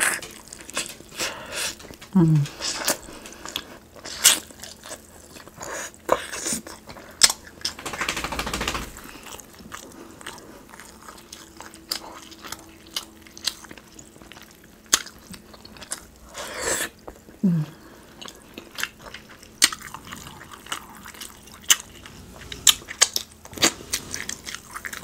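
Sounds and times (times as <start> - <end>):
wet chewing and lip smacking: 9.0 - 17.4, 18.1 - 25.0.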